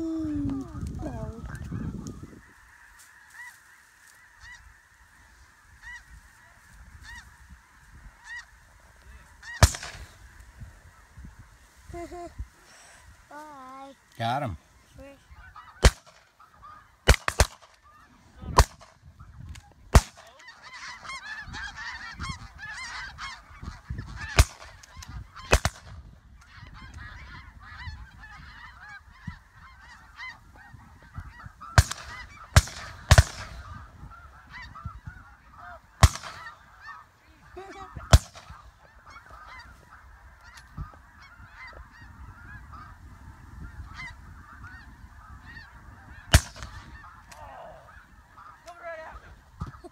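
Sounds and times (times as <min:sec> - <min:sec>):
geese honking: 0:00.6 - 0:49.9
shotgun shots: 0:09.6 - 0:10.1, 0:15.8 - 0:16.2, 0:17.0 - 0:17.7, 0:19.9 - 0:20.2, 0:25.5 - 0:25.9, 0:31.8 - 0:33.6, 0:36.0 - 0:36.5, 0:38.1 - 0:38.6, 0:46.3 - 0:46.8.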